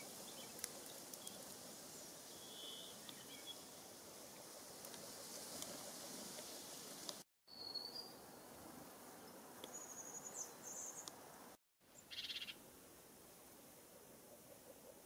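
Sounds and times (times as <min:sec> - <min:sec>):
outdoor background hiss: 0:00.0 - 0:15.0
high bird chirps: 0:07.5 - 0:08.2, 0:12.0 - 0:12.6.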